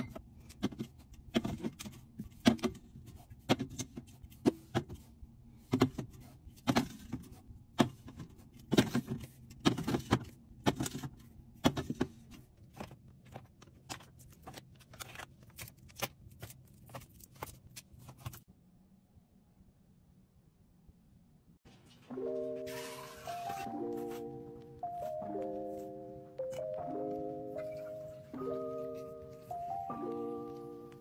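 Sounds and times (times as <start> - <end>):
containers clinking on fridge shelves: 0.0 - 14.6.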